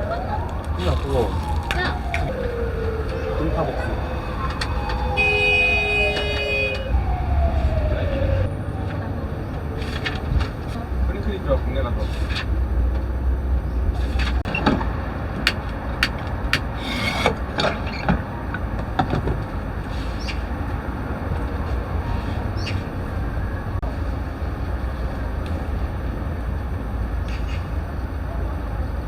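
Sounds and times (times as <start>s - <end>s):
low rumble of traffic: 0.0s - 29.0s
sharp clicks and knocks: 14.5s - 17.7s.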